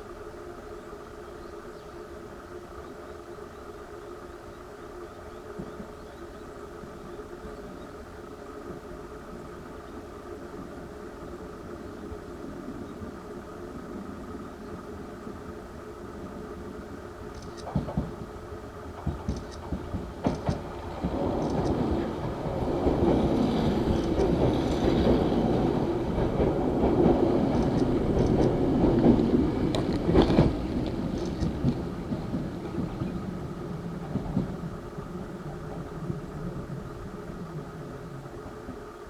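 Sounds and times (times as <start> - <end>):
electric train running past: 0.0 - 39.0
wheels clicking over rail joints: 17.4 - 37.4.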